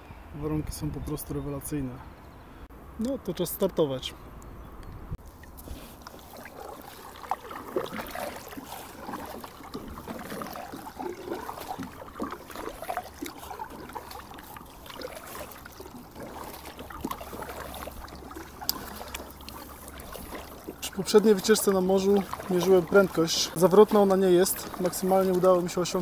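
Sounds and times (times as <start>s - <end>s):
paddle splashing in water: 5.2s - 26.0s
water dripping off paddle: 5.2s - 26.0s.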